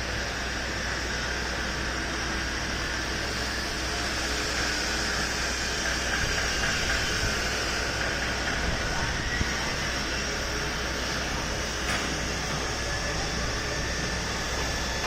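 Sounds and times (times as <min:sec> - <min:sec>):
construction machinery hum and hiss: 0:00.0 - 0:15.0.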